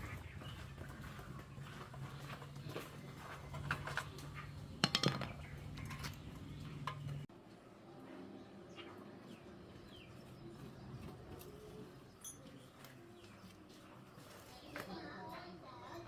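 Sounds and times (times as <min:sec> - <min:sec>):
metal tools clinking: 0:03.5 - 0:07.2, 0:12.2 - 0:12.7.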